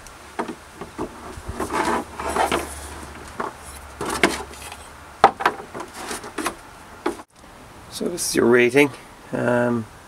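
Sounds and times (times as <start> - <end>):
light knocks and rubbing of objects: 0.4 - 7.3.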